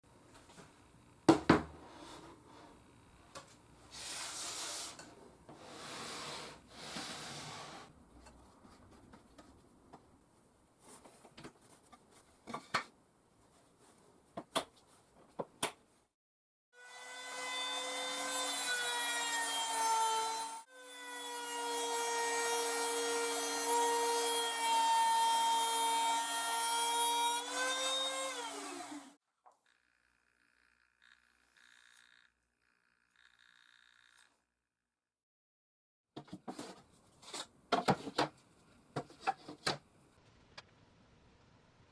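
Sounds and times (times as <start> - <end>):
router cutting wood: 16.8 - 34.3.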